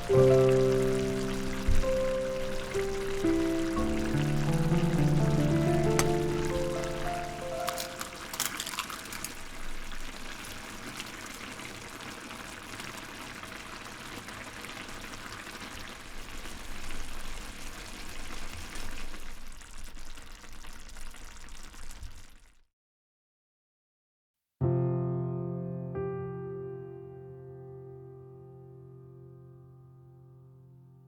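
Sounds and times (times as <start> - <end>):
stew bubbling in a pan: 0.0 - 22.6.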